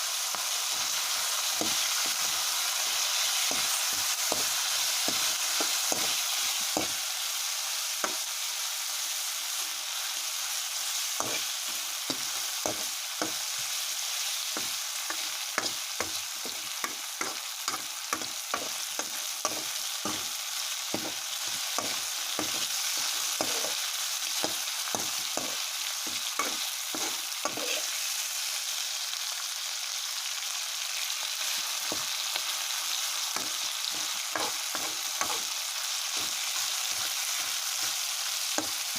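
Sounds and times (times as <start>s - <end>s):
meat sizzling in a pan: 0.0s - 38.9s
utensil scraping a pan: 21.0s - 23.8s, 26.4s - 27.9s, 33.4s - 35.5s.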